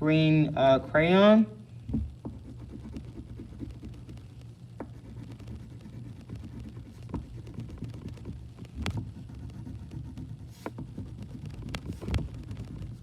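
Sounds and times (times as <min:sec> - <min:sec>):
low steady hum: 0:00.0 - 0:13.0
crayon tapping on paper: 0:02.2 - 0:04.2, 0:04.8 - 0:12.9
crayon rubbing on paper: 0:02.3 - 0:04.2, 0:04.8 - 0:08.4, 0:09.0 - 0:13.0.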